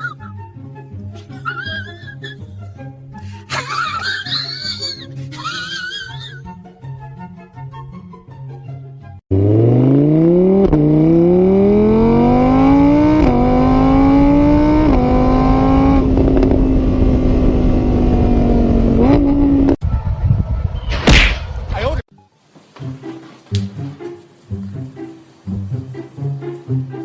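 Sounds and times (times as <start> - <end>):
soft music: 0.0 - 9.2, 22.1 - 27.0
car engine accelerating: 9.3 - 20.8.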